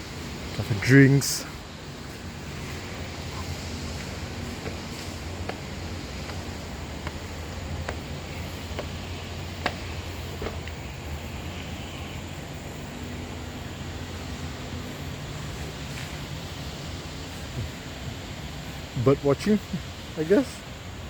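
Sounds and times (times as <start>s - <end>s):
rushing outdoor background: 0.0s - 21.0s
footsteps on a walkway: 2.0s - 10.8s, 15.6s - 16.4s.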